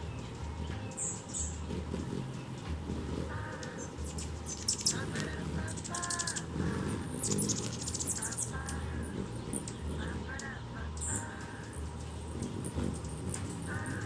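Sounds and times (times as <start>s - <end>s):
harsh bird calls: 0.0s - 14.0s
steady low rumble: 0.0s - 14.0s
high bird chirps: 3.5s - 5.1s, 5.7s - 14.0s.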